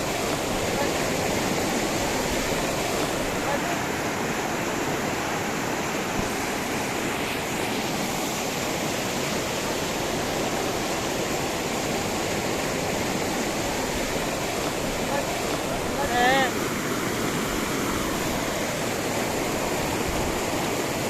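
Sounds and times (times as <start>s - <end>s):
river water rushing over rocks: 0.0s - 21.0s.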